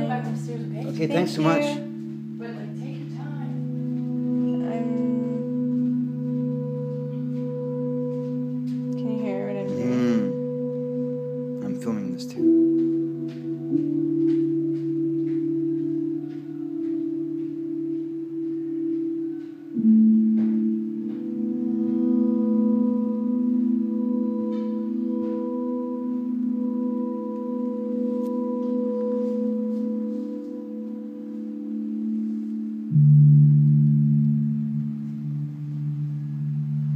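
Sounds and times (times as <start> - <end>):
electronic drone tones: 0.0 - 36.9.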